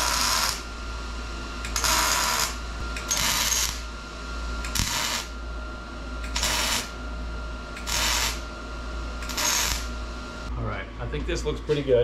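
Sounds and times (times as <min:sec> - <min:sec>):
arc welder crackling: 0:00.0 - 0:00.8, 0:01.5 - 0:05.5, 0:06.2 - 0:07.0, 0:07.6 - 0:10.5.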